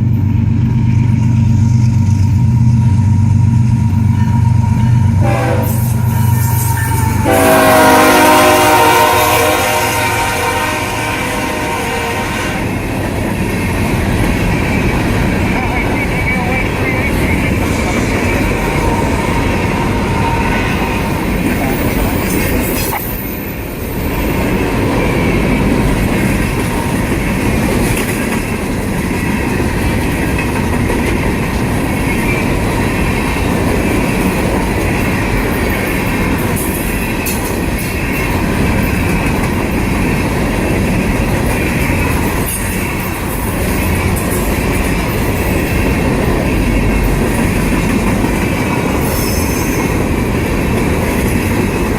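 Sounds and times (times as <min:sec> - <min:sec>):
freight train rumbling past: 0:00.0 - 0:51.9
wheels clacking over rail joints: 0:23.9 - 0:51.9.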